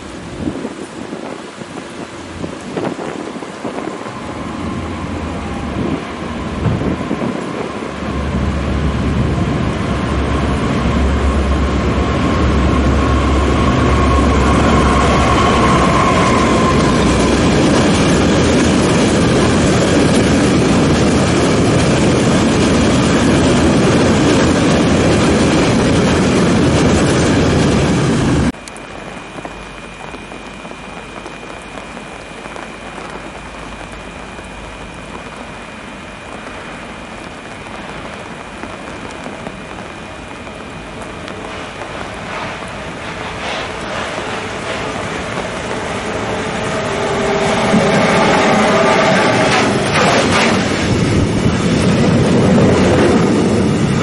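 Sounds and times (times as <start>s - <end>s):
diesel locomotive engine rumble: 0.0s - 54.0s
electric locomotive high whine: 0.0s - 54.0s
rain falling: 0.0s - 54.0s
wagons rolling over rails: 36.7s - 54.0s.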